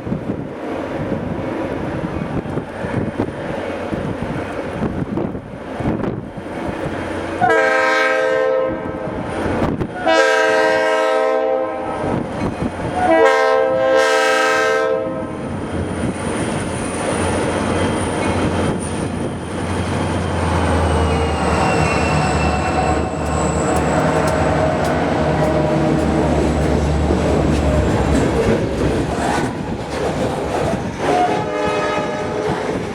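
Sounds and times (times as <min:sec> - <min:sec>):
locomotive air horn blasts: 0:07.4 - 0:09.0, 0:10.0 - 0:12.1, 0:13.0 - 0:15.4, 0:20.9 - 0:27.0, 0:31.1 - 0:32.5
locomotive engine rumbling: 0:15.1 - 0:32.9
train wheels clattering on rails: 0:15.6 - 0:31.5.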